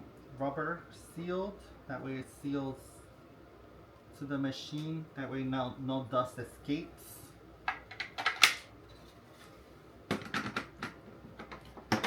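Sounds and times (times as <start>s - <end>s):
plastic parts clicking and knocking: 7.7s - 8.6s.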